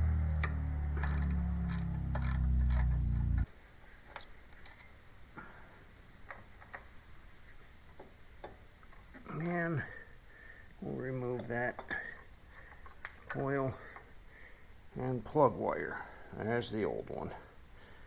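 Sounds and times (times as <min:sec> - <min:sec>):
low machine hum: 0:00.0 - 0:03.5
tools clicking on screws: 0:00.4 - 0:03.5.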